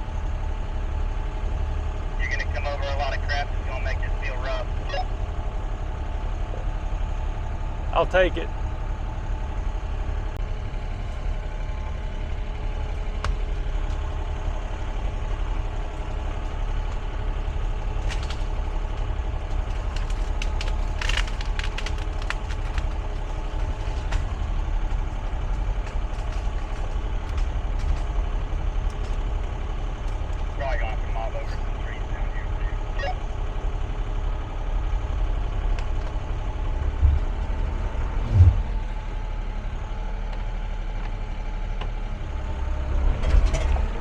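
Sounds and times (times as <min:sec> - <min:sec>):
diesel engine running: 0:00.0 - 0:44.0
tracks rolling over debris: 0:11.0 - 0:39.5
wood snapping and splintering: 0:16.4 - 0:30.5.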